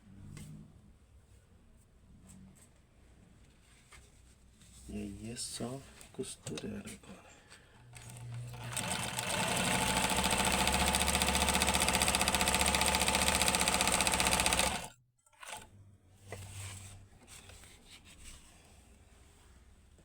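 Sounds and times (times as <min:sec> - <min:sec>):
faint clicks and handling: 0:05.9 - 0:08.4
sewing machine stitching: 0:08.0 - 0:15.7.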